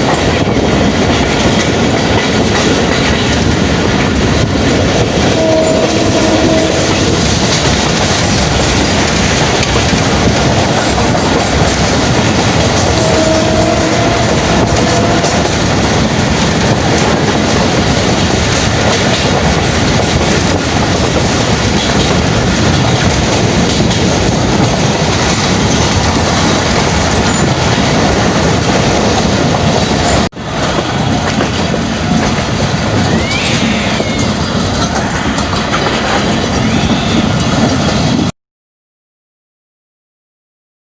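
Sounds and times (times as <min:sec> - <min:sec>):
train wheels rumbling on rails: 0:00.0 - 0:38.3.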